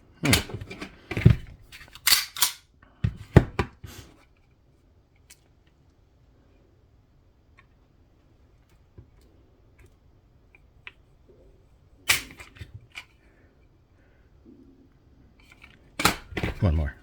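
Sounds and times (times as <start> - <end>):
pistol hammer snapping: 2.0 - 2.6.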